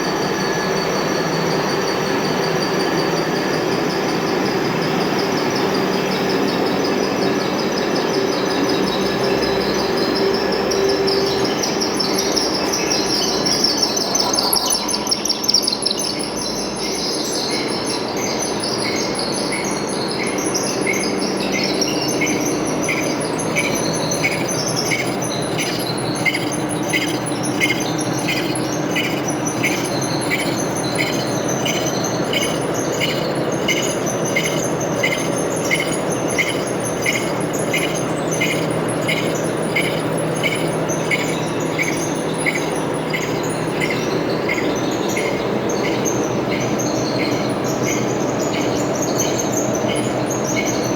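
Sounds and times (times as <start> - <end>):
wavering high squeal: 8.8 - 17.1, 20.7 - 48.1
high chirp: 12.1 - 16.6, 21.5 - 48.0
metal lathe humming: 21.4 - 46.8.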